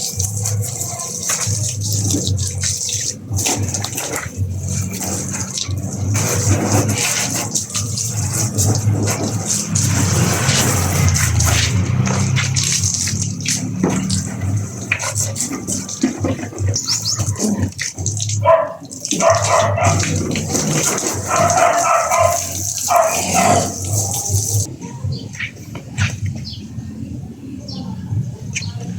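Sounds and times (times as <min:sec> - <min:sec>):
water spraying and splashing: 0:00.0 - 0:27.1
low motor hum: 0:08.0 - 0:17.1.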